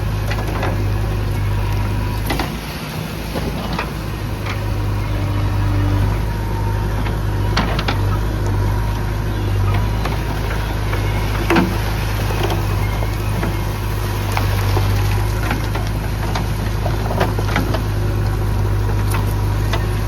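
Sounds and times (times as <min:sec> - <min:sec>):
machine engine droning: 0:00.0 - 0:20.0.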